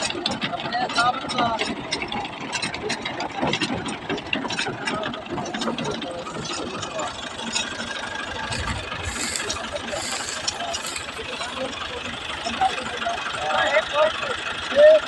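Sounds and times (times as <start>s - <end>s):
rotavator clattering: 0.0s - 15.0s
tractor engine running: 0.0s - 15.0s.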